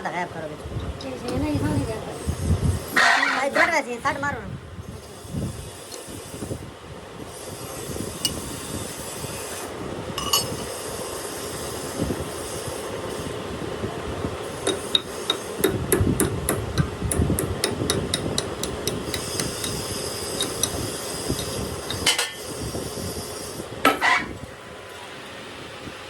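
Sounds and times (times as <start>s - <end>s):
hammer striking metal: 14.6s - 20.8s.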